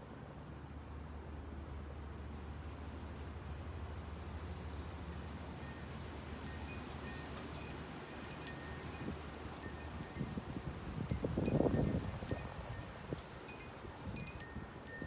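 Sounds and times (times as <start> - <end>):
low rumble of wind: 0.0 - 15.0
wind chime ringing: 5.2 - 15.0.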